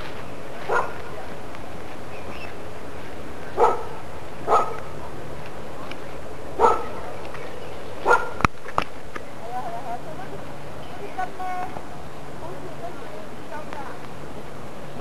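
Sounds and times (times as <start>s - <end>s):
dog barking: 0.7s - 1.0s, 3.6s - 4.9s, 6.6s - 7.0s, 8.0s - 8.4s.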